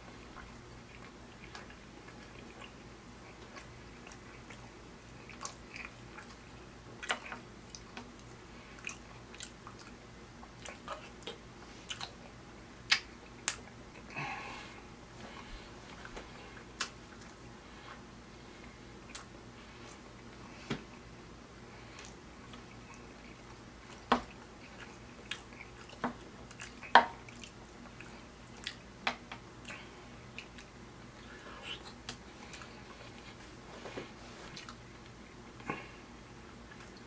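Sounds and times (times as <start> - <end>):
person chewing: 0.2 - 20.5, 21.8 - 28.9, 29.6 - 36.0
wet mouth smacks and clicks: 12.9 - 13.6.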